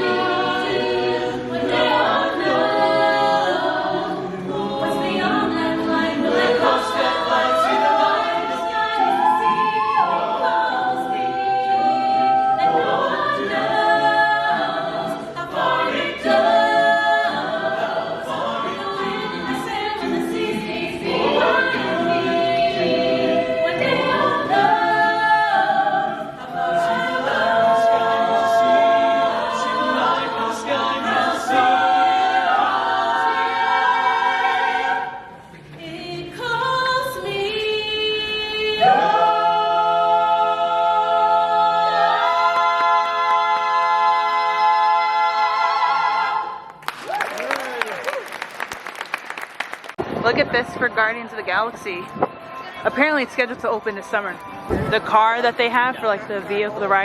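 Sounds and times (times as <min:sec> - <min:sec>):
vocal ensemble singing in harmony: 0:00.0 - 0:48.0, 0:51.1 - 0:57.0.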